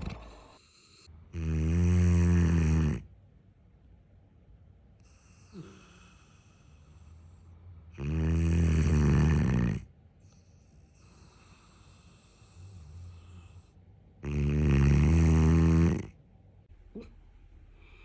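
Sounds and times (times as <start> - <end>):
dog snoring: 0.0 - 3.1, 5.0 - 16.2
dog breathing: 8.6 - 16.1.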